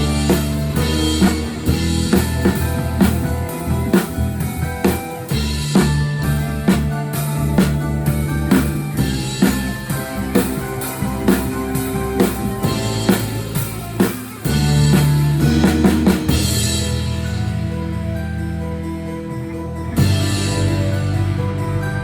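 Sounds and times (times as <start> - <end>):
drum kit kick and snare: 0.0 - 17.1
rock band playing: 0.0 - 22.0.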